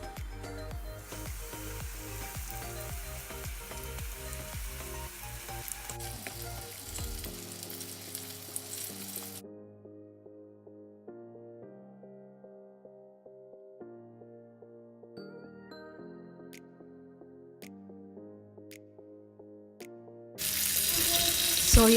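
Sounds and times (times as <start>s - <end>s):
soft background music: 0.0s - 21.9s
chicken pieces sizzling in oil: 0.9s - 9.4s, 20.4s - 21.9s.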